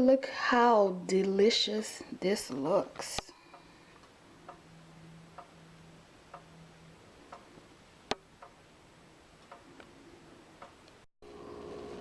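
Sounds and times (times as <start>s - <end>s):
faint clock-like ticks: 3.3s - 5.6s, 6.3s - 6.6s, 7.2s - 8.6s, 9.4s - 9.8s.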